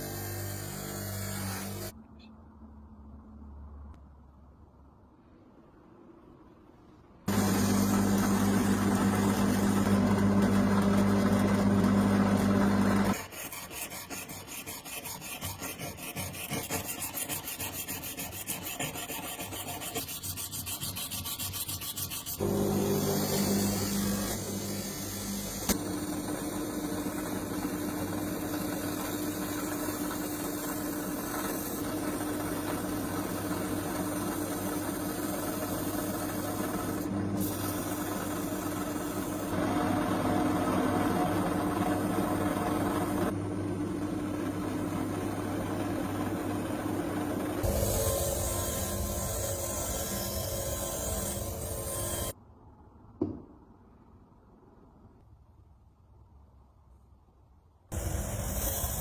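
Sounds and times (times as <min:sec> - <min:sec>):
power tool motor humming: 0:47.6 - 0:52.4.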